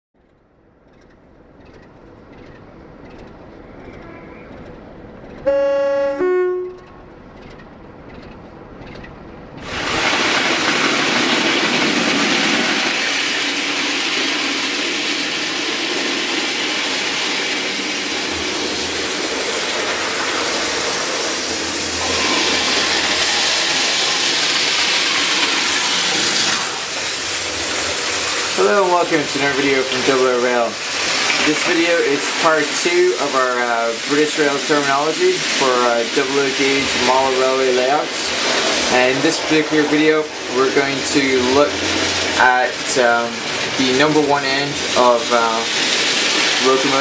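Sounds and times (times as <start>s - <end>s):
train running past: 0.9s - 13.0s, 15.6s - 47.0s
two-note train horn: 5.4s - 7.2s.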